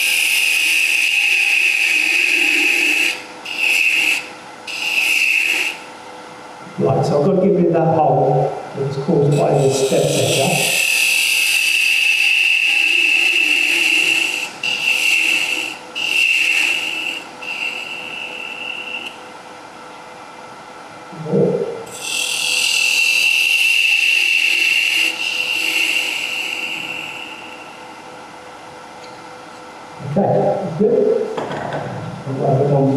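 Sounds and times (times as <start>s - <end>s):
lathe tool scraping wood: 0.0s - 6.0s, 9.2s - 19.2s, 21.9s - 28.0s.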